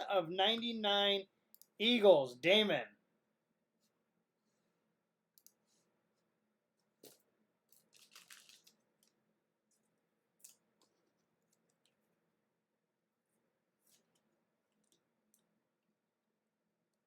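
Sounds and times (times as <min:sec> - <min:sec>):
soft crackle of wrapper: 0:07.0 - 0:12.0.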